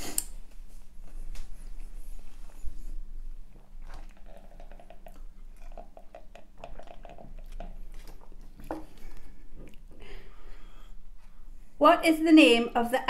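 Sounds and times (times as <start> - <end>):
chewing and wet mouth clicks: 3.8 - 9.9
sipping from a cup: 3.8 - 9.9.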